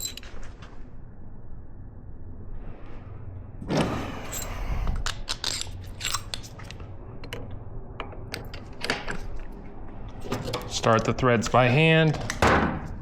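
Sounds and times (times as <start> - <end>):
metal hardware clicks and clinks: 0.0 - 0.4, 4.3 - 9.5
metal hardware thud or scrape: 3.7 - 6.7.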